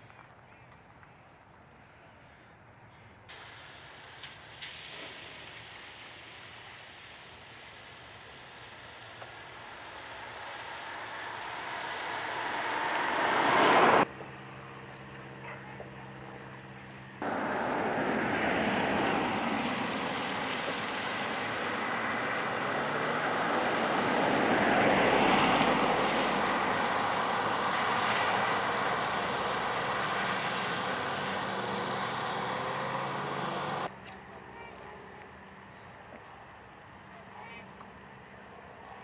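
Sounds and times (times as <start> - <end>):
tyres spraying water: 3.3 - 14.1, 17.2 - 33.9
faint engine: 8.3 - 39.0.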